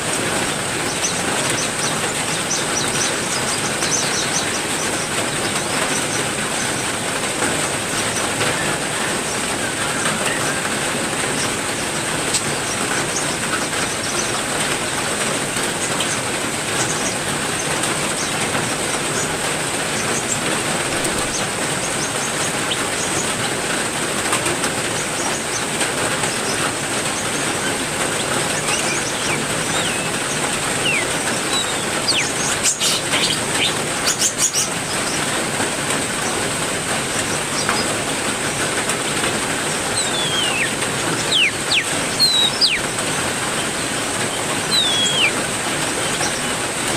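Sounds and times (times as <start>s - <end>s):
heavy rain falling: 0.0s - 46.9s
bird chirps: 0.8s - 6.8s, 26.3s - 35.3s, 39.8s - 46.6s.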